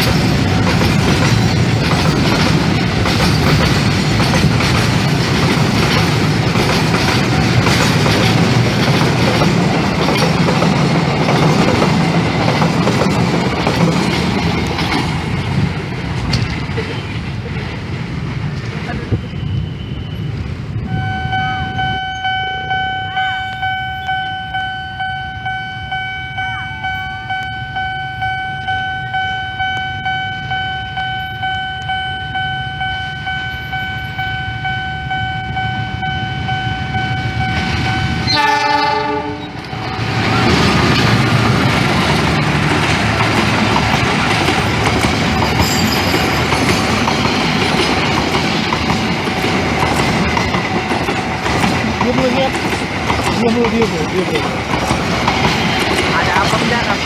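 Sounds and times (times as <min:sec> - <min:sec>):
wheels clacking over rail joints: 0:00.0 - 0:19.2, 0:39.6 - 0:57.0
diesel train passing: 0:00.0 - 0:57.0
train horn blast: 0:20.9 - 0:28.3, 0:35.5 - 0:39.9
steady high pulsing tone: 0:20.9 - 0:38.3.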